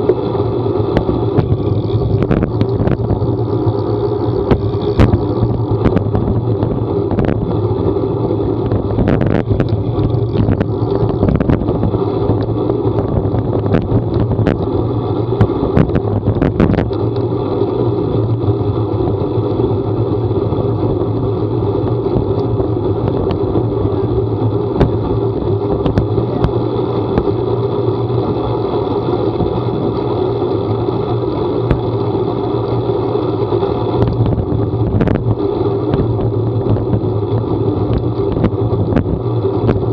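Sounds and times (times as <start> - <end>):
vehicle low drone: 0.0 - 39.9
sharp ticks and knocks: 0.9 - 7.4, 8.6 - 14.7, 15.3 - 17.3, 24.7 - 27.4, 31.3 - 32.8, 34.0 - 37.0, 37.8 - 39.9.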